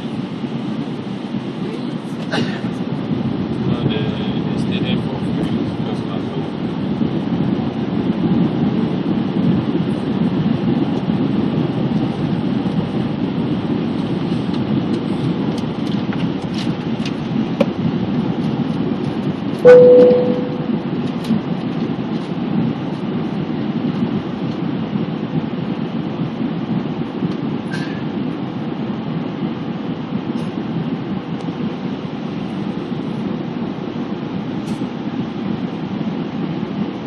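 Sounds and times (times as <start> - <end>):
airplane cabin rumble: 0.0 - 37.0
short ringing tone: 19.6 - 20.8.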